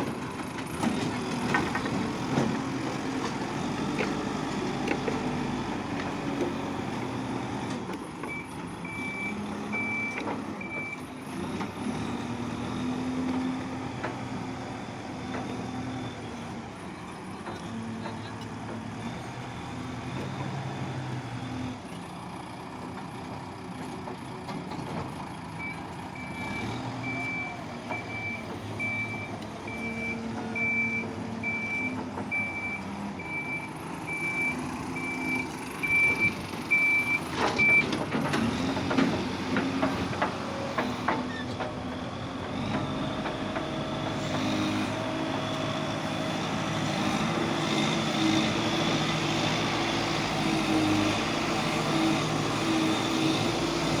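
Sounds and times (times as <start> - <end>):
digger diesel engine running: 0.0 - 54.0
reversing alarm beeping: 8.3 - 11.1, 25.6 - 37.9.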